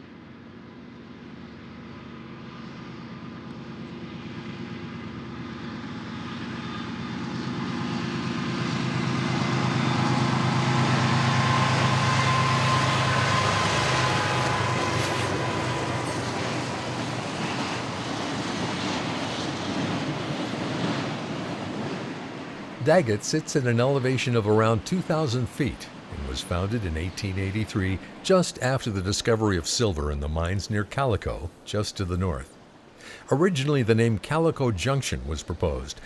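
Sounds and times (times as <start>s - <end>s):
locomotive engine hum: 0.0s - 36.0s
train wheels clattering on rails: 11.7s - 20.8s.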